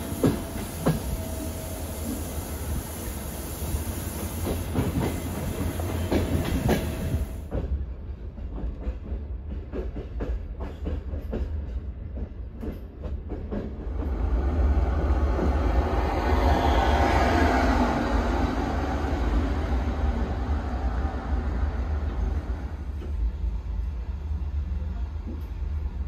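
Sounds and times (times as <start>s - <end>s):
high hiss: 0.0s - 7.4s
low train rumble: 0.0s - 26.0s.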